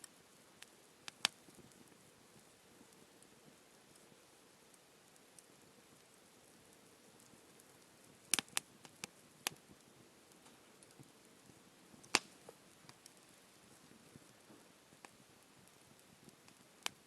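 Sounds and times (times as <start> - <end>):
campfire crackling and popping: 0.0 - 17.0
faint steady hiss: 0.0 - 17.0.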